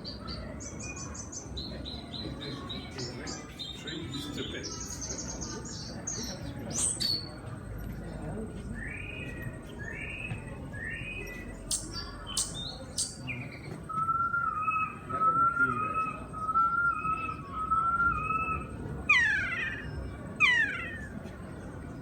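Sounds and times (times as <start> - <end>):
recorded bird calls: 0.0 - 22.0
sharp clicks: 11.7 - 13.2.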